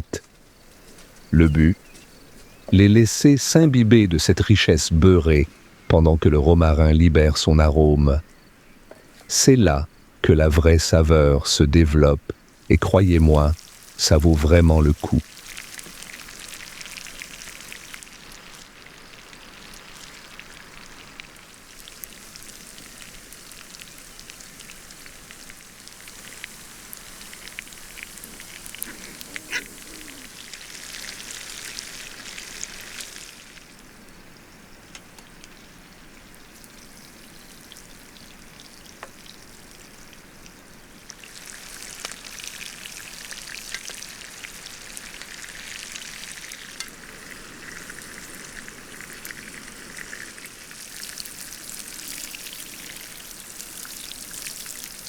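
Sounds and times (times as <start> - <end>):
fat crackling and spitting: 12.2 - 33.5
steaks sizzling in a pan: 15.2 - 33.6, 41.2 - 55.0.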